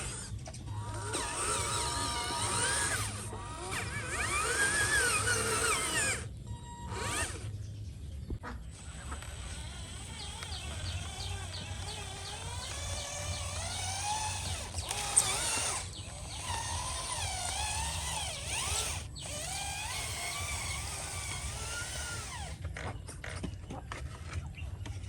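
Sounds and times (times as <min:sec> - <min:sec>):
small electric motor whining: 0:00.0 - 0:07.6, 0:08.7 - 0:22.9
sharp clicks: 0:08.9 - 0:20.5.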